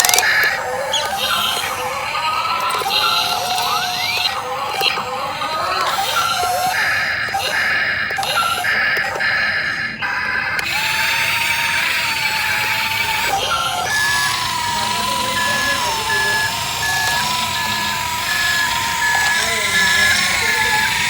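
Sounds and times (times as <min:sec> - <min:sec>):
wavering electronic tone: 0:00.0 - 0:21.0
electronic reversing beeps: 0:11.9 - 0:21.0.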